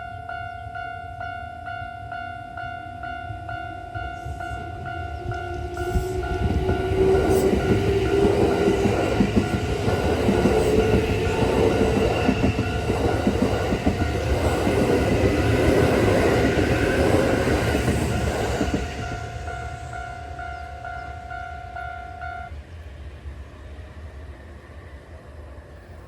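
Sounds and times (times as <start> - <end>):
crossing alarm bell pulsing: 0.0 - 22.6
train wheels clattering: 4.2 - 21.1
train motor whine: 4.2 - 24.9.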